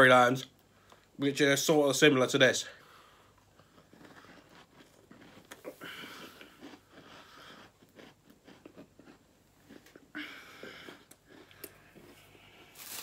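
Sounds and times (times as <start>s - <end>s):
chewing hard cookie: 3.2s - 12.6s.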